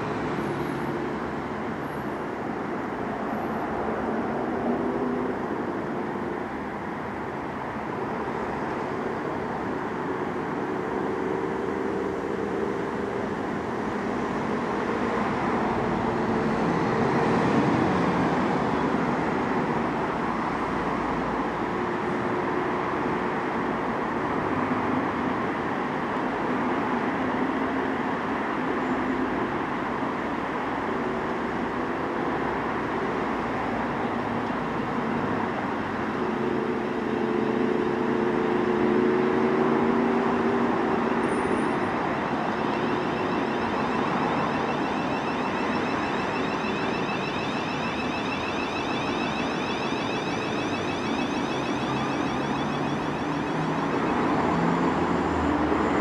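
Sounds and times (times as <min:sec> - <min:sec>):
thin high whine: 0:40.9 - 0:55.3.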